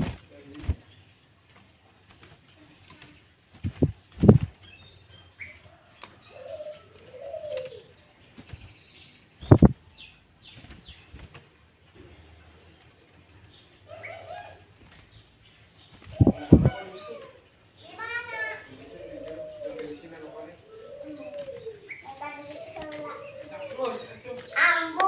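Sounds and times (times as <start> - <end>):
birds chirping: 0.0 - 25.0
cooing: 6.3 - 7.8, 18.3 - 21.8.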